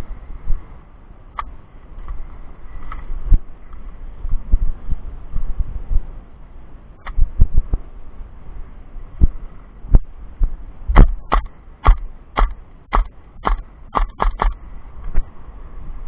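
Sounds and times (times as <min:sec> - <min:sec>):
airsoft gun shots: 0:11.0 - 0:14.6
dull thumps: 0:11.0 - 0:14.6.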